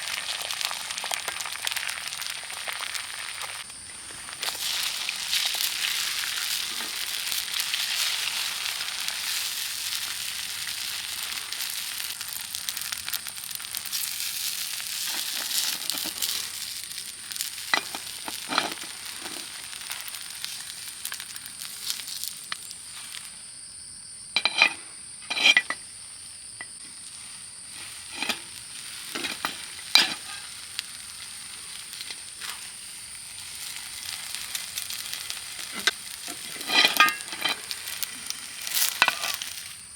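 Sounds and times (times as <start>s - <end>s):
food sizzling in a pan: 0.0s - 39.9s
utensil clinking against pan: 24.4s - 25.8s, 29.1s - 30.4s, 35.7s - 38.0s.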